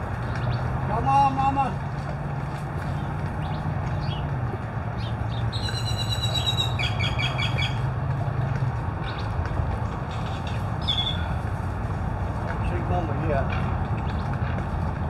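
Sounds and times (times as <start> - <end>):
bird calling: 2.8 - 7.9, 10.1 - 11.5.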